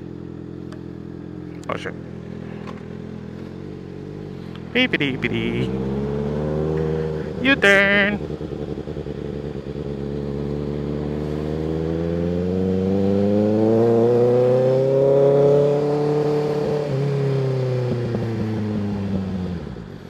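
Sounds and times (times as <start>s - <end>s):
motorcycle engine pulling away: 5.7s - 7.3s, 8.2s - 20.0s.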